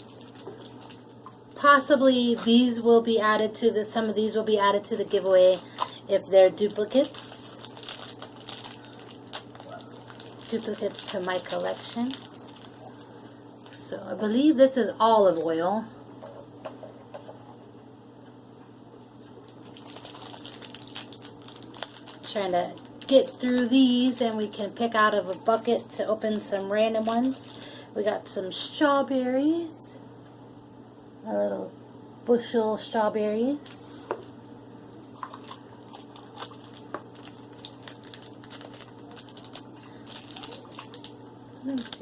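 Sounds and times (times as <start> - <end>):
plastic packaging crinkling: 0.0 - 2.7, 4.2 - 13.8, 19.4 - 27.8, 35.0 - 42.0
steady low hum: 0.0 - 42.0.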